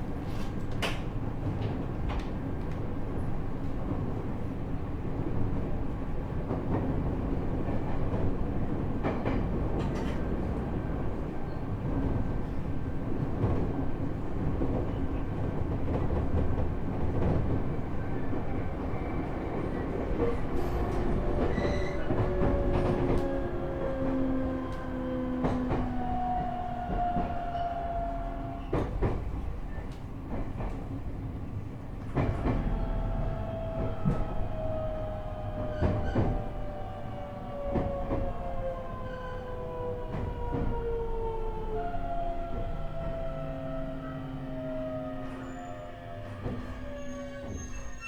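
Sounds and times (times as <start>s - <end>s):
train running rumble: 0.0s - 48.0s
rail-joint clicks: 0.2s - 2.9s, 9.0s - 10.7s.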